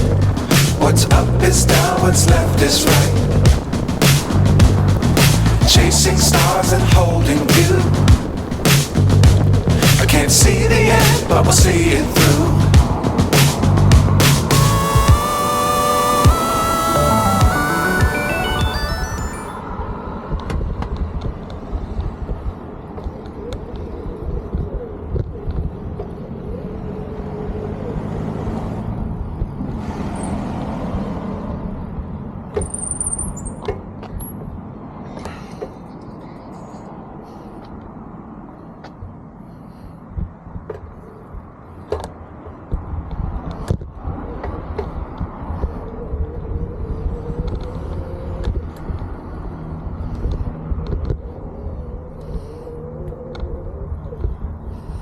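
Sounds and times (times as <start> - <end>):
wind rumbling on microphone: 0.0 - 14.5, 19.6 - 27.1, 35.8 - 55.0
vehicle engine passing: 0.0 - 16.2, 26.7 - 32.4
electric motor whine: 14.8 - 17.5.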